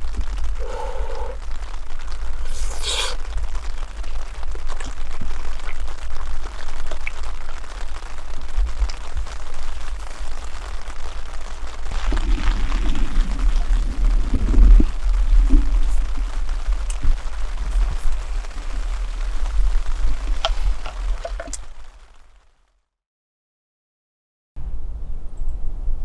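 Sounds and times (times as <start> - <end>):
wind buffeting microphone: 0.0 - 21.6
campfire crackling and popping: 0.0 - 22.6
short rush of noise: 2.4 - 3.3.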